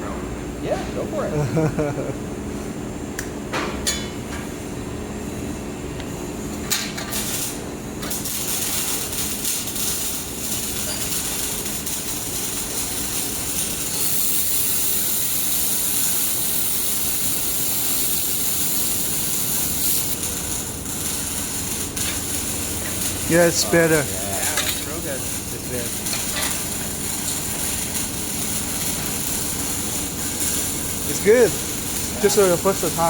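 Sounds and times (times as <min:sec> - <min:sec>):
laser welder hissing: 0:07.1 - 0:33.0.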